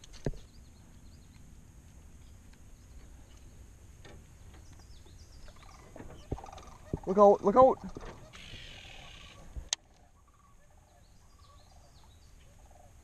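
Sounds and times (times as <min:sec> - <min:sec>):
faint bird chirps: 0:04.3 - 0:13.0.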